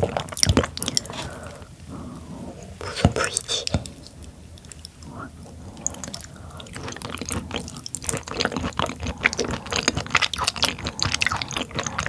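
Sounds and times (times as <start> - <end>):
wet chewing: 0.0 - 1.7, 2.8 - 12.0
mouth smacks and clicks: 2.8 - 5.2.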